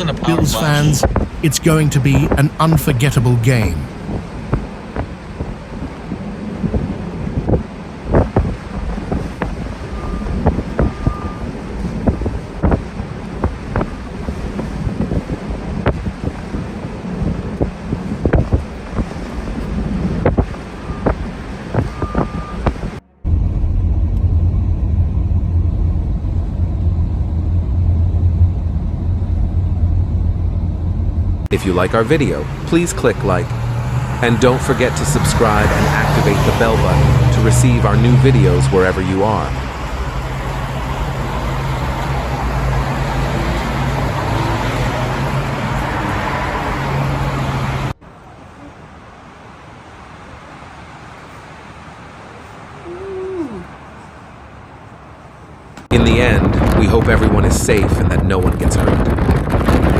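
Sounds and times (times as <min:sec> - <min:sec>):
low vehicle engine rumble: 0:00.0 - 0:59.9
road noise: 0:00.0 - 0:59.9
short beep: 0:21.8 - 0:22.7.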